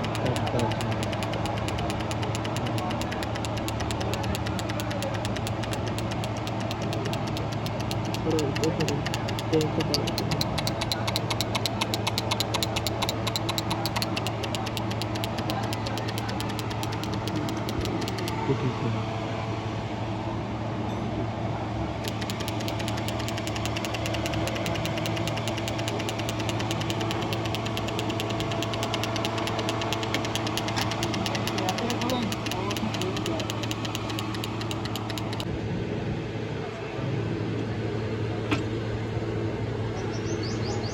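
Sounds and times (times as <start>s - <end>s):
engine running with ticking: 0.0s - 18.7s, 22.0s - 35.5s.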